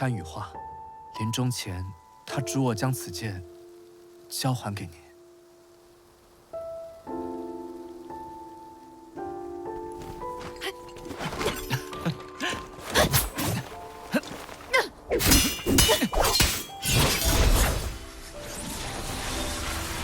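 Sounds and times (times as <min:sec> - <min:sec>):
soft sustained music: 0:00.0 - 0:20.0
metallic clangs and hits: 0:15.2 - 0:17.6.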